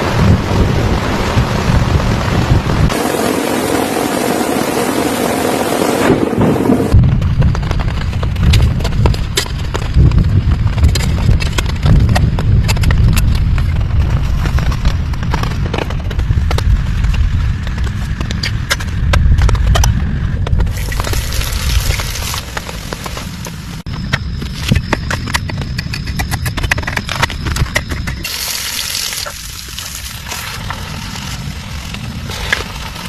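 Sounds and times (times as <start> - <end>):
rain hissing: 0.0 - 7.0, 20.7 - 23.9, 28.2 - 33.0
heavy low rain rumble: 0.0 - 23.9, 28.2 - 33.0.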